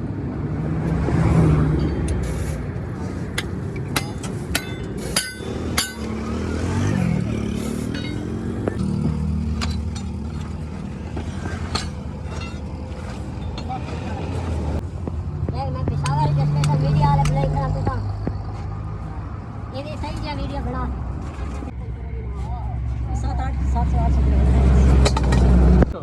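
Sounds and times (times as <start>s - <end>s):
vehicle engines running: 0.0s - 26.0s
vehicle passing: 0.0s - 26.0s
sharp metallic clinks: 4.0s - 6.3s, 7.9s - 10.2s.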